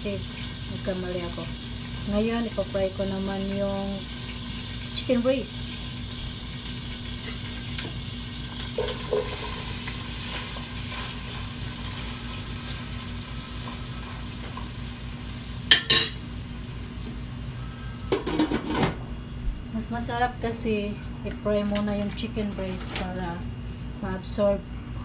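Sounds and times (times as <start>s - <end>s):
chicken sizzling in a pot: 0.0s - 18.8s.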